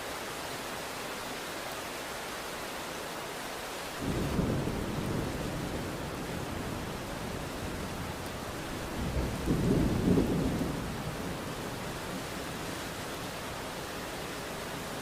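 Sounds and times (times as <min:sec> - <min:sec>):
steady rain falling: 0:00.0 - 0:15.0
thunder rolling: 0:04.0 - 0:07.1, 0:08.8 - 0:11.6.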